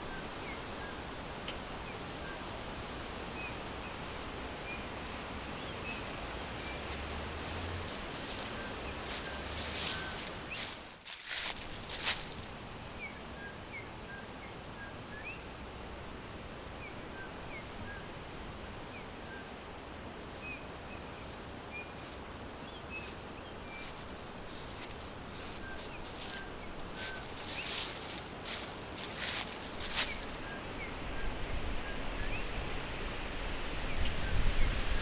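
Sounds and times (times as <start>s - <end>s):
birds chirping: 0.0s - 13.1s, 20.3s - 30.9s
steady background hiss: 0.0s - 34.1s
rustling noise: 2.5s - 12.9s, 21.2s - 30.8s.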